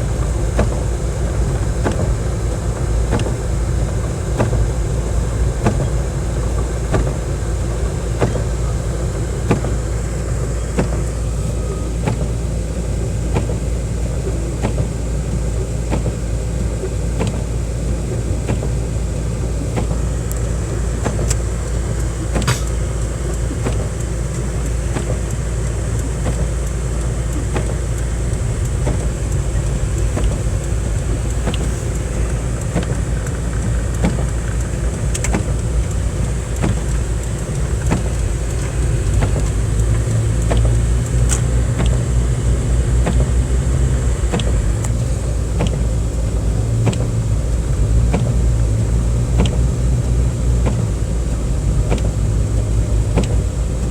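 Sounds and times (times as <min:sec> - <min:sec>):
car engine and road rumble: 0:00.0 - 0:53.9
faint clicks and knocks: 0:19.6 - 0:42.1.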